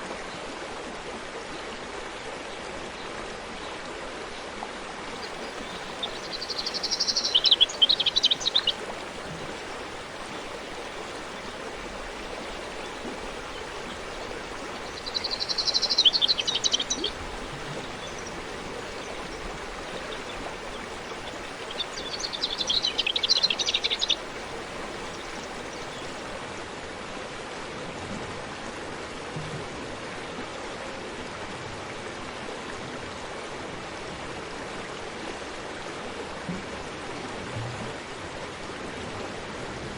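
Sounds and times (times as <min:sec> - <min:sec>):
forest stream rushing: 0:00.0 - 0:29.3
songbird trilling: 0:05.2 - 0:26.3.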